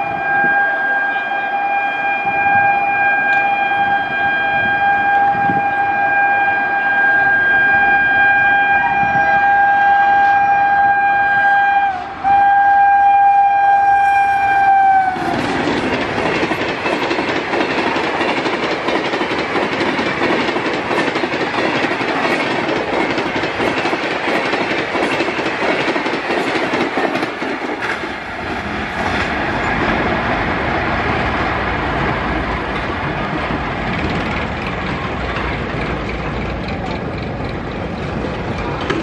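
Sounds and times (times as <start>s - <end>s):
train rushing past: 0.0s - 39.0s
wheels clattering over rail joints: 15.2s - 39.0s.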